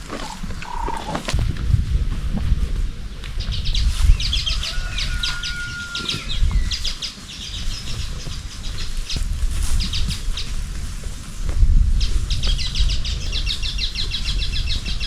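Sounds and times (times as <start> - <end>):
small birds twittering: 0.0 - 1.4, 2.8 - 11.0, 11.9 - 15.0
low rumble: 0.0 - 4.4.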